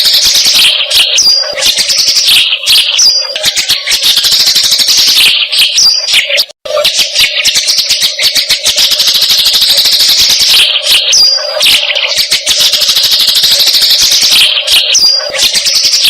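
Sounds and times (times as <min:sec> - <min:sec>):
rapid chattering bird calls: 0:00.0 - 0:16.0.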